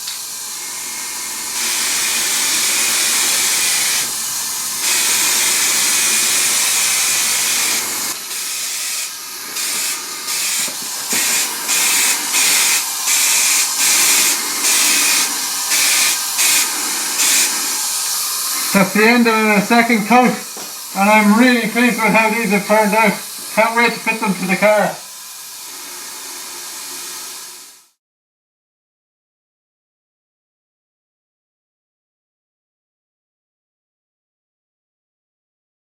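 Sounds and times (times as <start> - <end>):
aerosol spray can hissing: 0.0 - 27.9.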